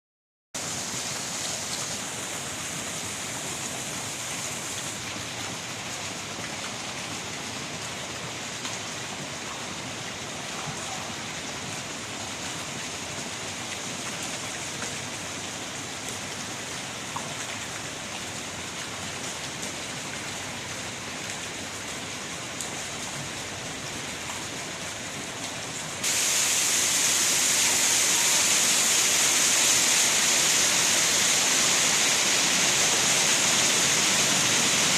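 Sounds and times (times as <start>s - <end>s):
fountain jets splashing: 0.6s - 34.9s.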